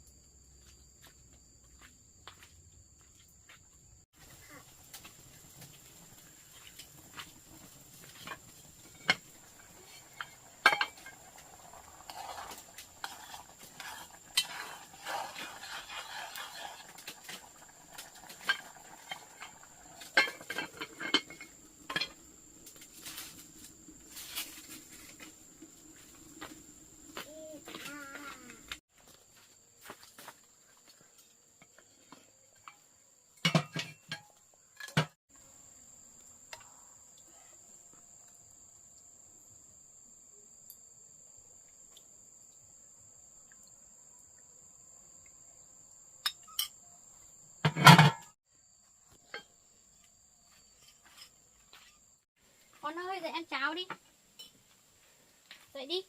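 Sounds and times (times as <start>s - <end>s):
crickets chirping: 0.0s - 56.0s
pots and utensils clinking: 4.2s - 22.3s, 32.6s - 35.2s, 47.6s - 48.4s.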